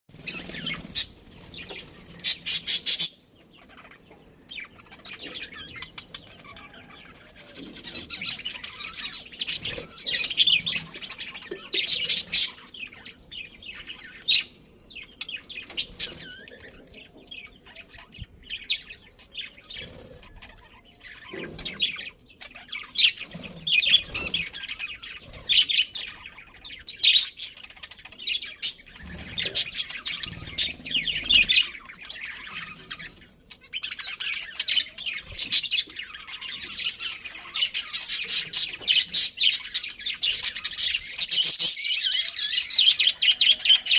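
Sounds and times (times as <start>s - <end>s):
budgerigars chirping and chattering: 0.1s - 43.9s.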